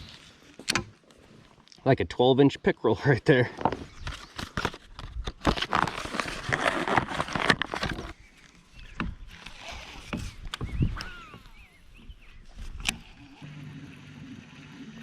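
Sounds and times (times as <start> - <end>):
bird chirping: 7.8 - 13.4.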